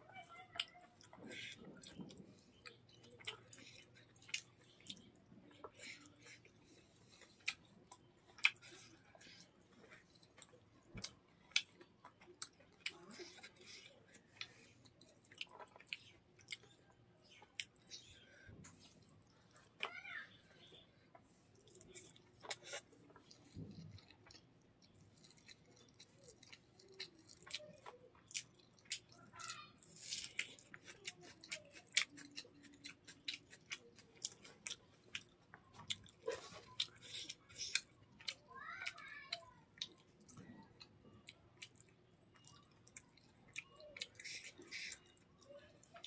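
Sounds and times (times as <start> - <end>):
chewing with wet mouth clicks: 0.5 - 19.9, 20.7 - 46.0.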